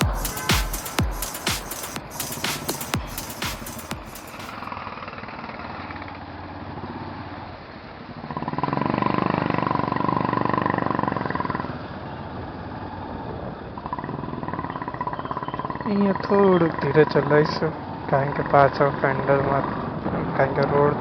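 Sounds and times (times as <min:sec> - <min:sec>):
road noise: 0:01.8 - 0:21.0
motorcycle engine: 0:08.3 - 0:12.5.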